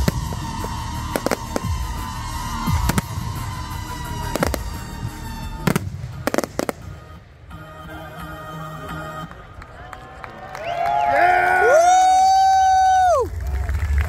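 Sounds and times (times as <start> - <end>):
fireworks bursting with sharp bangs: 0.0 - 7.8
music: 0.0 - 10.8.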